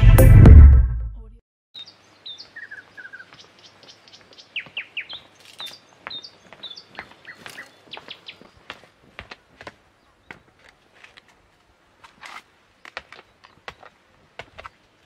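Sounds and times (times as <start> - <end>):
small birds chirping: 1.8 - 10.8.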